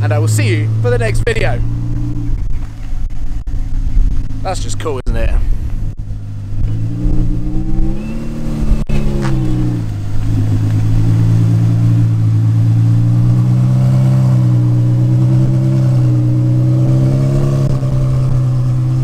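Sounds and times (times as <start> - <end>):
race car engine idling: 0.0 - 19.0.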